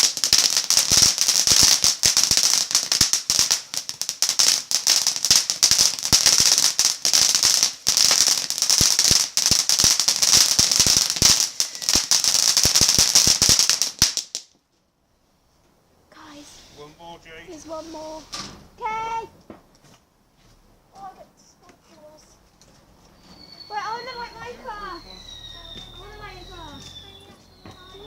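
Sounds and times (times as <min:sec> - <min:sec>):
firework hissing and crackling: 0:00.0 - 0:14.5, 0:16.3 - 0:16.9, 0:23.2 - 0:28.0.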